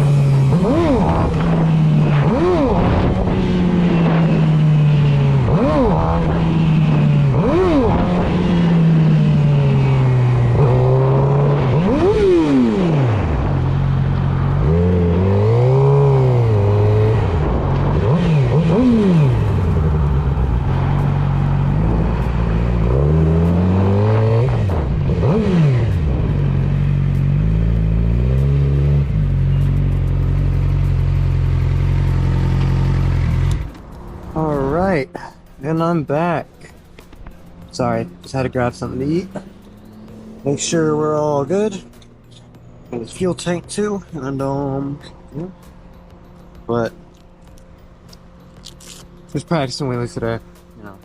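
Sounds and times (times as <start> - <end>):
motorcycle engine revving: 0.0 - 35.0, 37.1 - 51.0.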